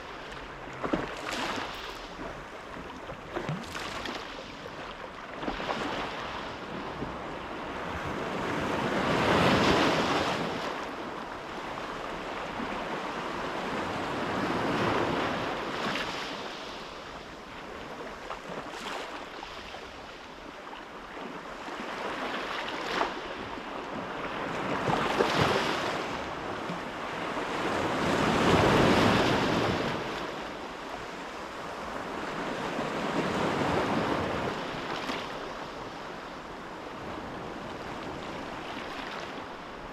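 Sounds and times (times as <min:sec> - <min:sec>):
sea waves washing in: 0:00.0 - 0:06.8, 0:21.8 - 0:39.9.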